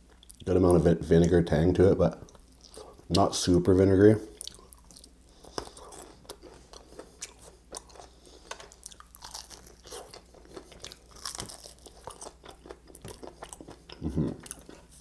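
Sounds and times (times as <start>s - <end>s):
person chewing chicken crunchily: 4.4s - 15.0s.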